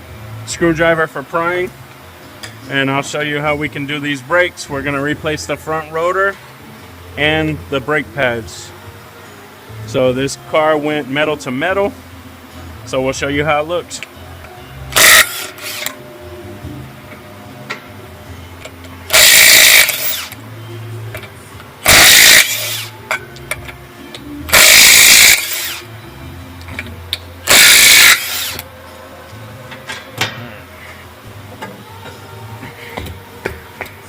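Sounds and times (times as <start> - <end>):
impact wrench bursts: 14.9 - 16.0, 19.1 - 20.4, 21.8 - 23.0, 24.5 - 25.9, 27.4 - 28.7.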